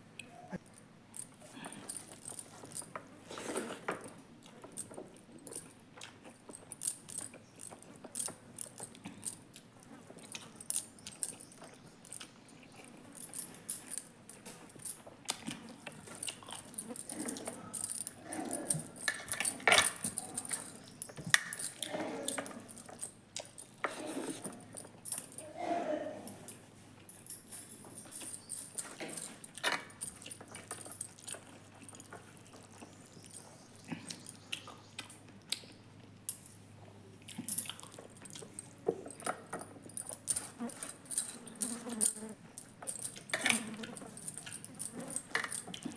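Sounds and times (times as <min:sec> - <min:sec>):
chewing and mouth noises: 0:00.2 - 0:25.6, 0:26.5 - 0:45.9
light clicks and clinks: 0:00.2 - 0:45.9
grunt-like vocal sounds: 0:25.4 - 0:26.4.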